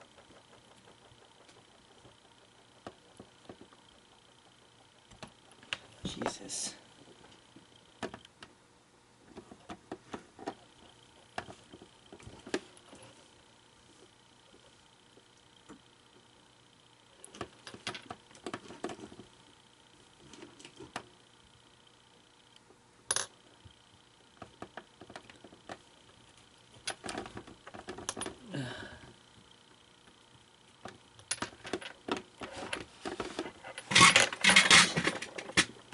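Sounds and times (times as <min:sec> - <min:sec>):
clicks and rattles of tools: 0:30.8 - 0:35.9.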